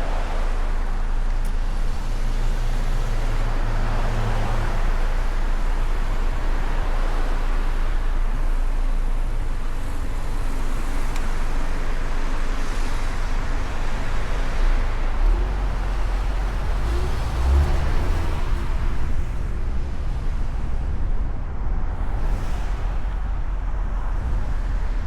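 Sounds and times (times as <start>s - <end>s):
wind rush and road noise: 0.0s - 25.0s
wind buffeting microphone: 12.6s - 25.0s.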